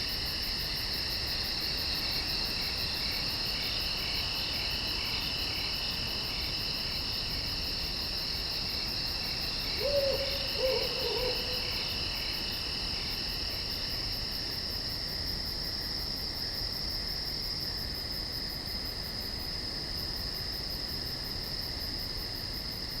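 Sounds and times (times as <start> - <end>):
crickets and insects trilling: 0.0 - 16.5
owl hooting: 9.8 - 11.7.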